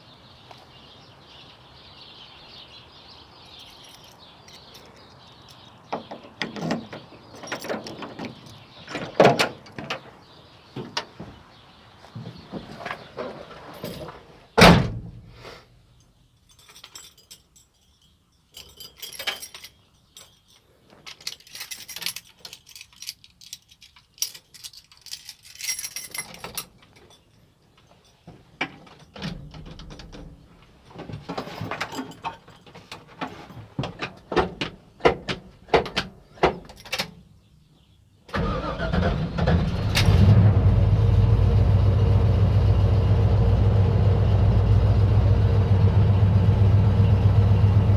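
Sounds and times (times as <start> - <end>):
car engine running loud: 39.4 - 47.9.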